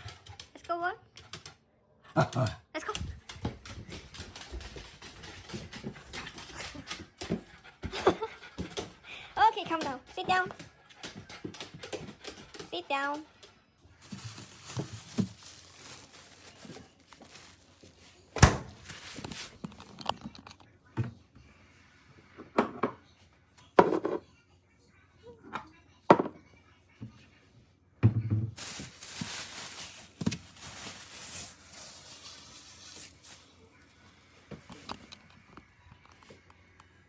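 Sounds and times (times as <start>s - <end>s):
rustling: 14.0s - 20.0s, 28.6s - 33.6s.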